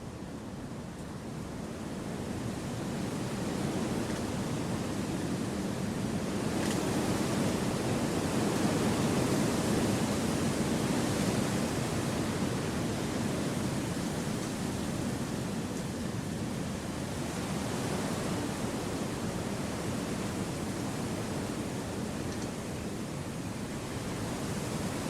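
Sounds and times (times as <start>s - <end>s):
wind rushing through trees: 0.0s - 25.0s.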